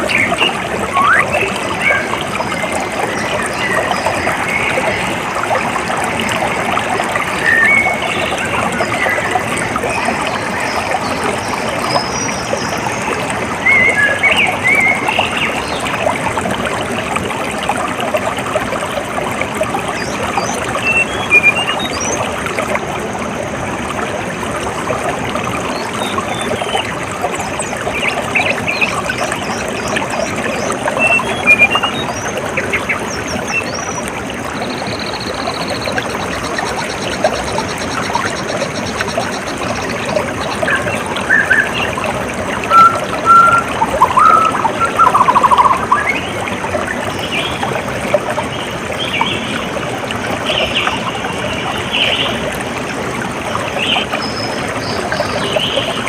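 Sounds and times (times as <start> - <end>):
birds chirping: 0.0 - 5.0, 7.3 - 9.3, 42.6 - 46.5
stream water trickling: 0.0 - 56.0.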